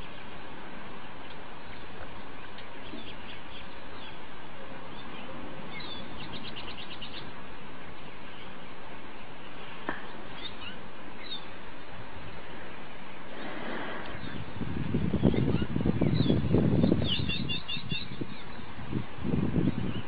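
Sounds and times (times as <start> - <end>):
steady background noise: 0.0 - 20.0
small bird chirping: 10.1 - 11.5.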